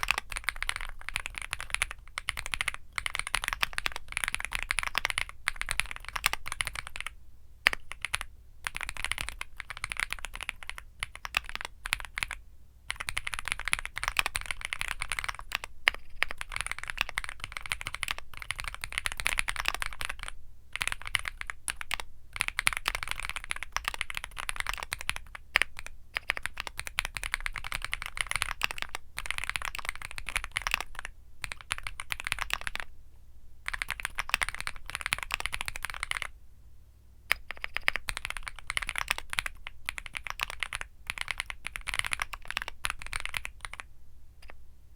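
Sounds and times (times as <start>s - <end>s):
mechanical keyboard typing: 0.0s - 32.9s, 33.7s - 36.3s, 37.3s - 44.6s.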